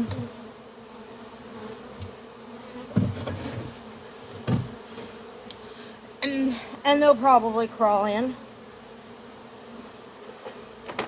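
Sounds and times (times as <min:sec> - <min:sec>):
bees buzzing: 0:00.0 - 0:11.0
dull knocks: 0:02.9 - 0:03.7, 0:04.4 - 0:04.8.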